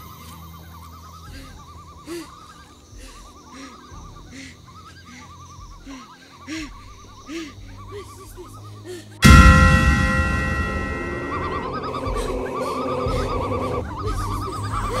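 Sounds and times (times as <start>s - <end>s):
steady low hum: 9.2s - 12.3s.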